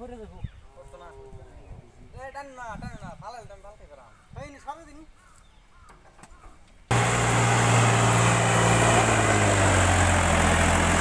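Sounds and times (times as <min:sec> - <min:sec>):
tractor engine running: 0:06.9 - 0:11.0.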